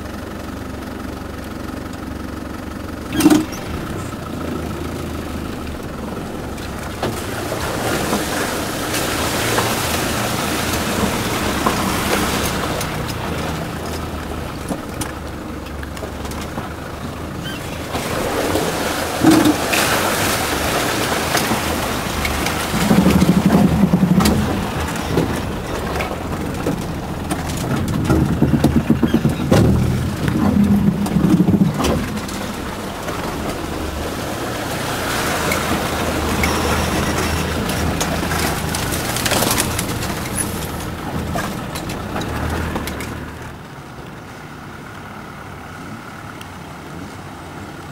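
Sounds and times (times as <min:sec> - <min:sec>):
vehicle engine under load: 0:00.0 - 0:47.9
knocks and clatter: 0:03.1 - 0:08.3, 0:19.2 - 0:20.3, 0:21.1 - 0:43.4.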